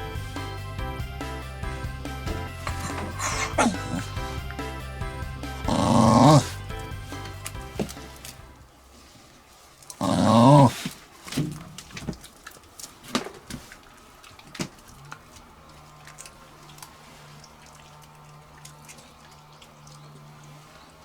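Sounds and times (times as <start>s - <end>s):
dog whining: 2.4s - 4.6s, 5.6s - 6.7s, 10.0s - 10.8s.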